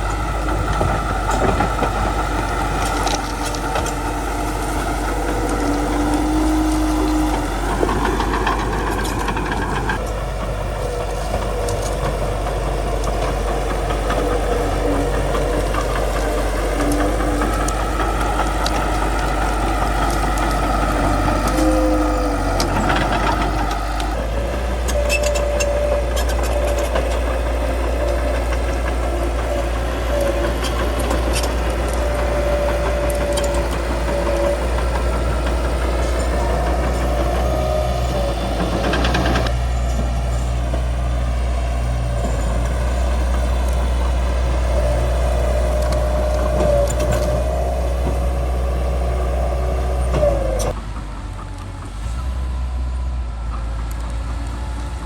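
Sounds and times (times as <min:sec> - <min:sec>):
wavering squeal: 0:00.0 - 0:10.0, 0:10.6 - 0:50.8
scattered clicks and cracks: 0:00.0 - 0:39.6
bulldozer diesel engine droning: 0:00.0 - 0:55.0.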